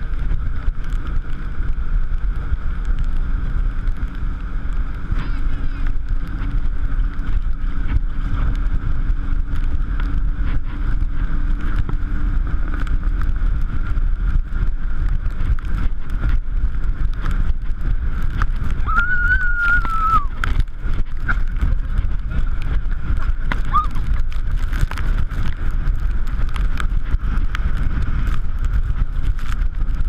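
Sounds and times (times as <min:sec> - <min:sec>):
speedboat engine running: 0:00.0 - 0:30.0
wind buffeting microphone: 0:00.0 - 0:30.0.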